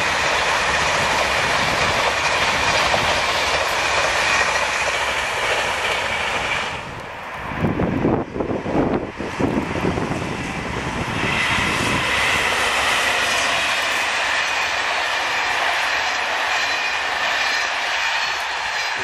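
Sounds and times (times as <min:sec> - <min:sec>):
wheels clattering over rail joints: 0:00.0 - 0:07.7
train rolling noise: 0:00.0 - 0:19.0.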